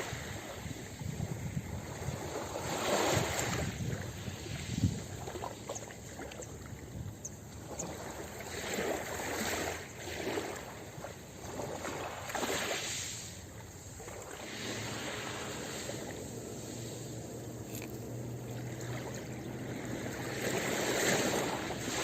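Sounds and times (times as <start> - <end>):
ocean waves washing onto beach: 0.0 - 22.0.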